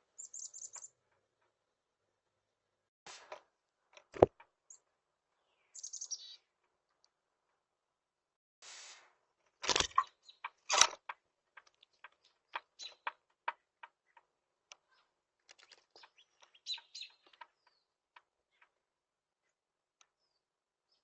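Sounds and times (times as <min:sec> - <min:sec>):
small birds chirping: 0:00.0 - 0:01.4, 0:04.3 - 0:07.2, 0:09.9 - 0:21.0.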